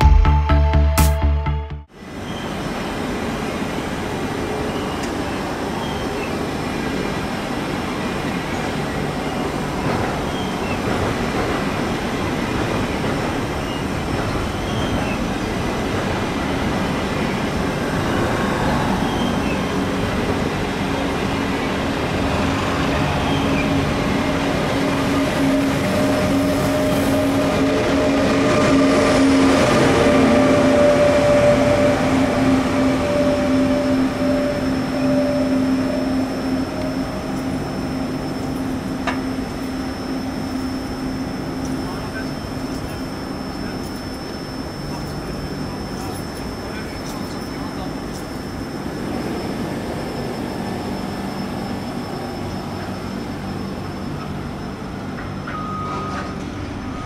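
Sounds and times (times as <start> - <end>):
train carriages rumbling on rails: 4.0 - 57.0
locomotive electric hum: 13.9 - 57.0.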